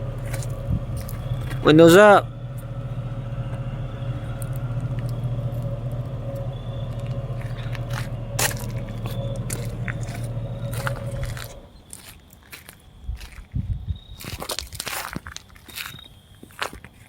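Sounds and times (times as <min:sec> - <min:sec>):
truck engine running: 0:00.0 - 0:12.1.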